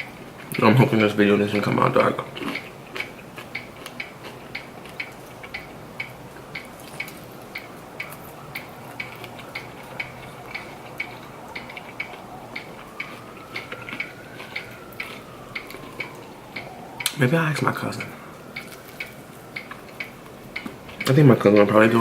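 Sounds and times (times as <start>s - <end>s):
clock ticking: 2.4s - 17.2s, 18.0s - 22.0s
faint rising and falling tone: 5.6s - 22.0s.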